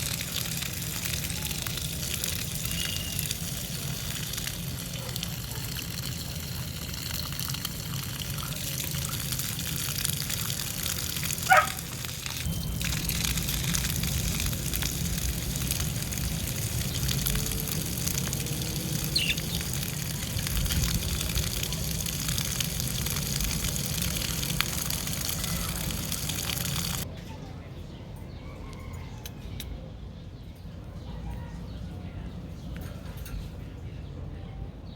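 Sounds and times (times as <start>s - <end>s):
water running and splashing: 0.0s - 27.1s.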